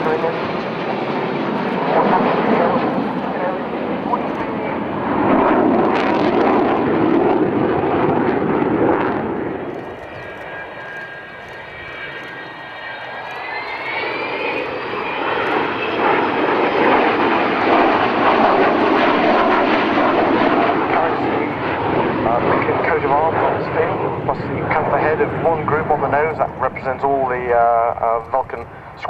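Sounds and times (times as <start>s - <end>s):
jet engine roar: 0.0s - 29.0s
high multi-tone whine: 8.3s - 29.0s.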